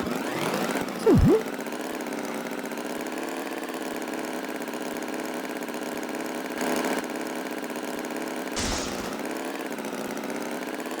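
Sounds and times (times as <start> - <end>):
loud pitch swoop: 1.0 - 1.5.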